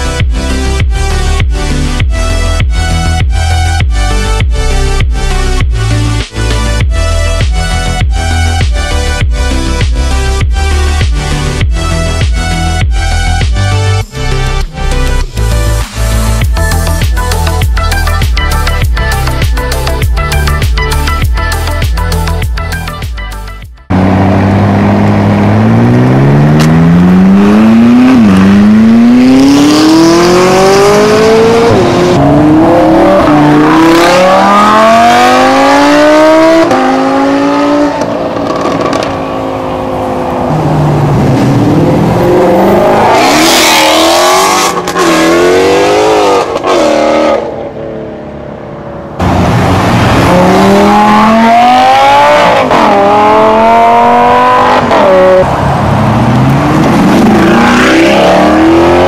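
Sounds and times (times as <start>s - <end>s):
supercar engines revving hard: 23.9s - 47.9s, 49.2s - 59.0s.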